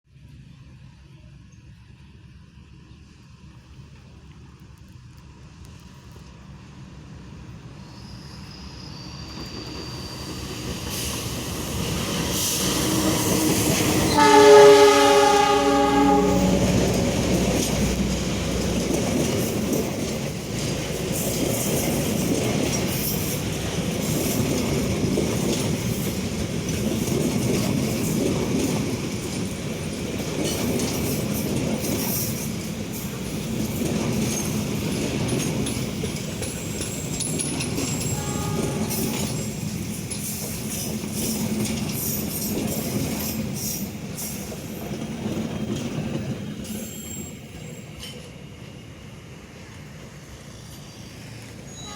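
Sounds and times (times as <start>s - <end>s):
train rumble and wheel clatter: 0.1s - 51.9s
train horn: 12.4s - 18.6s, 37.9s - 39.5s, 51.7s - 51.9s.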